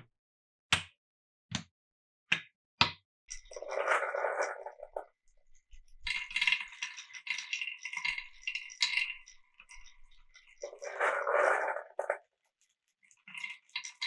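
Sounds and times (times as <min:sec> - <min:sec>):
marbles clicking and clinking: 0:03.3 - 0:05.0, 0:06.0 - 0:12.2
marbles rolling rumble: 0:03.3 - 0:05.1, 0:05.8 - 0:12.4.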